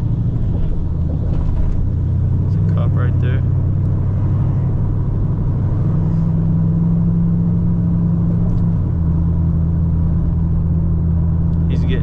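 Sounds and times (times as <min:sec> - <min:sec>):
car exhaust drone: 0:00.0 - 0:12.0.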